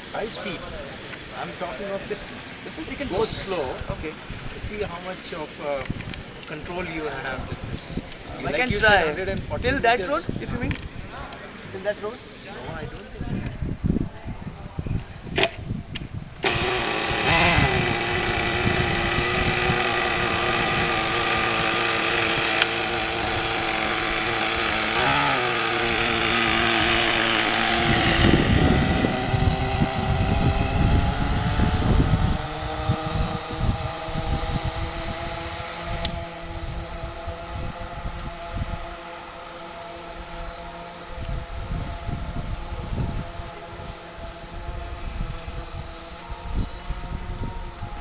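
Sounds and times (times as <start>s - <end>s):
small engine buzzing whine: 15.4s - 48.0s.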